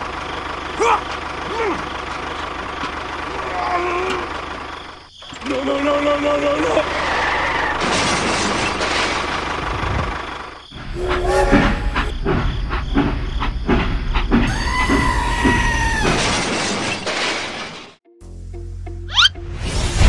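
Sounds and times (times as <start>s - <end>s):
low train rumble: 0.0s - 16.2s
train hissing: 10.8s - 16.0s
two-note train horn: 10.9s - 12.1s
train wheels clickety-clack: 11.0s - 16.2s.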